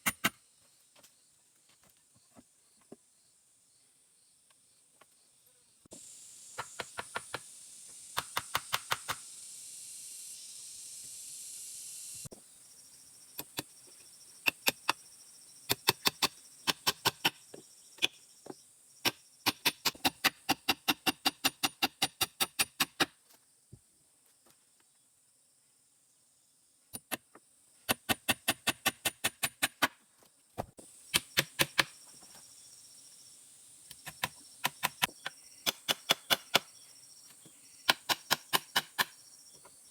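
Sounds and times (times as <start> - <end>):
insect hiss: 0.0 - 39.9
sharp tool strikes: 34.0 - 36.7, 37.8 - 39.2.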